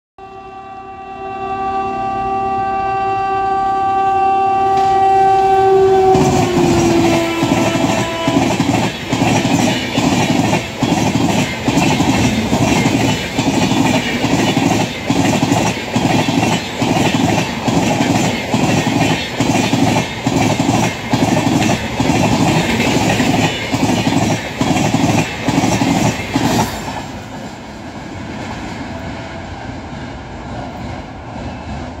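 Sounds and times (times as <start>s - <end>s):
locomotive horn: 0.2s - 8.9s
train wheels clattering: 5.8s - 27.6s.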